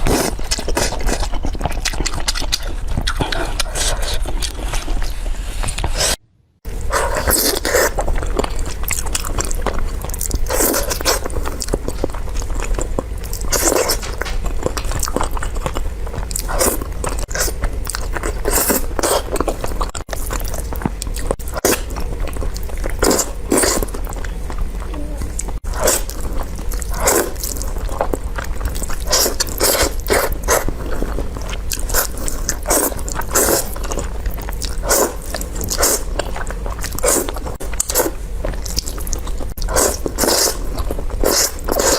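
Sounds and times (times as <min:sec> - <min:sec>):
person chewing crunchy food: 0:00.0 - 0:41.9
steady low hum: 0:00.0 - 0:41.9.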